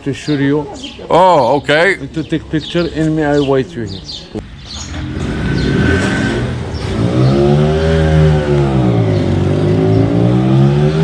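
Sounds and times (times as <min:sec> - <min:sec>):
traffic noise: 0:00.0 - 0:11.0
engine revving: 0:04.5 - 0:11.0.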